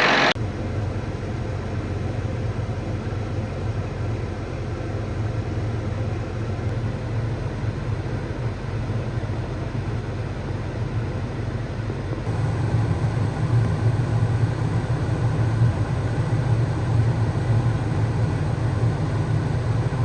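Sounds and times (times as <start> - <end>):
loud rushing noise: 0.0 - 0.4
vehicle engine running: 12.3 - 20.0.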